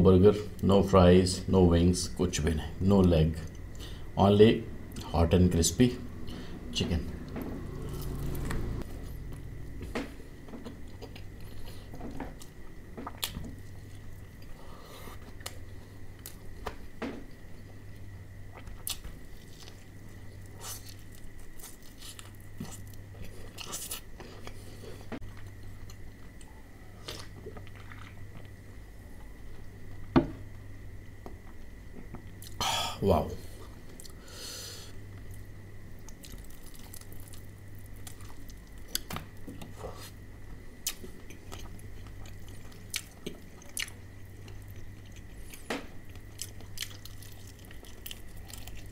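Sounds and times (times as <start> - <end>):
chewing crispy fried chicken: 36.0 - 40.2, 40.8 - 48.9.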